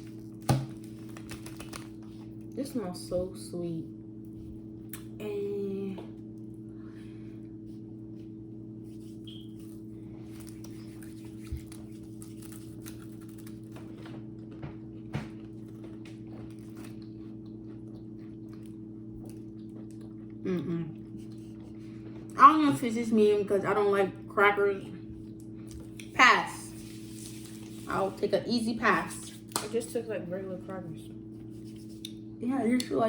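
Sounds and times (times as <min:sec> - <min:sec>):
crackers being chewed: 0:00.0 - 0:02.6, 0:09.0 - 0:22.4
steady low hum: 0:00.0 - 0:33.0.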